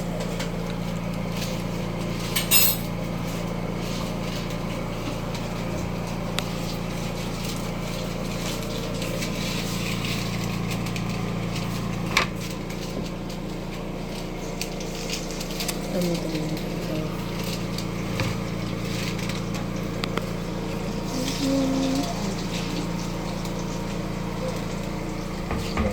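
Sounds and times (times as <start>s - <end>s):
kitchen utensils clinking: 2.3s - 3.0s.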